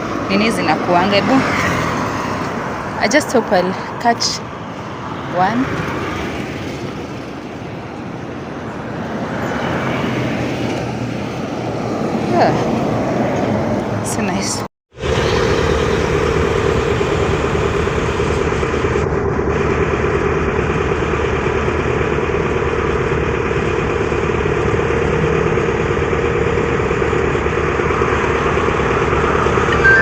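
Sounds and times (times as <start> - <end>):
vehicle engine running: 0.0 - 9.0, 15.0 - 30.0.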